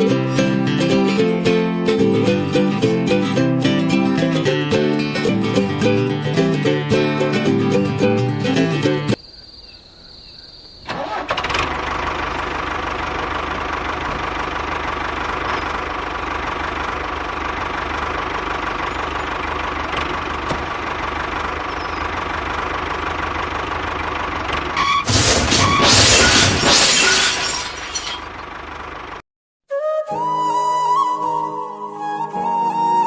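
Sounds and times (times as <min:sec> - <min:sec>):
tractor engine running: 0:10.8 - 0:26.8, 0:27.6 - 0:29.2.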